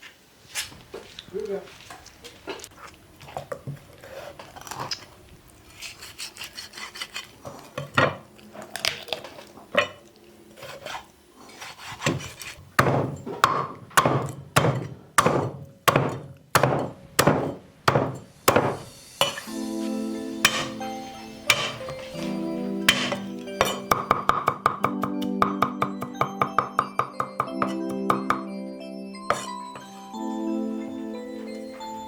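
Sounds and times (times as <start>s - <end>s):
axe chopping wood: 12.0s - 19.5s, 20.5s - 20.8s, 21.5s - 28.4s.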